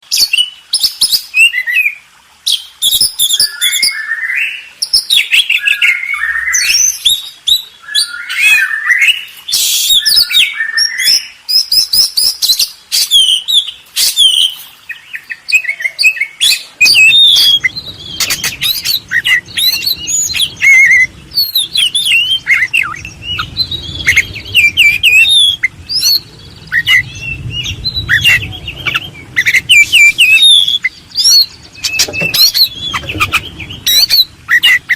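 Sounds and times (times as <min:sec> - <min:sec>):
birds chirping and trilling: 0:00.0 - 0:34.9
low rumble: 0:17.2 - 0:34.9.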